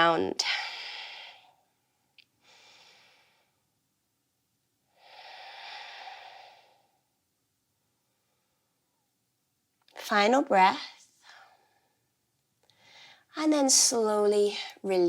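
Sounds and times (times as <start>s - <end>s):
woman breathing deeply: 0.5s - 1.8s, 2.4s - 3.7s, 4.9s - 7.2s, 12.7s - 13.3s.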